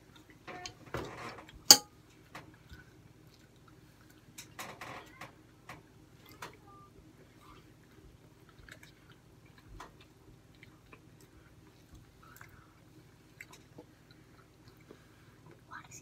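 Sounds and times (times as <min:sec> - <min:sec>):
faint chewing of fried food: 0:02.4 - 0:04.6, 0:06.2 - 0:16.0.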